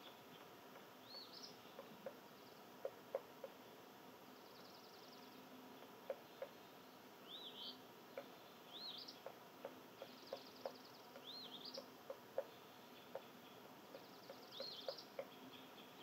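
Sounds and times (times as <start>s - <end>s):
songbird whistling call: 13.9s - 16.0s.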